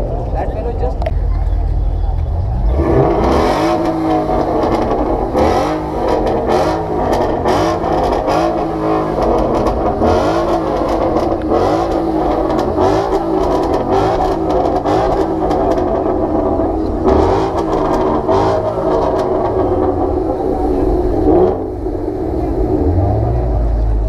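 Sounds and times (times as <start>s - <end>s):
engine crackles: 0.0s - 24.0s
sports car engine revving: 0.0s - 24.0s.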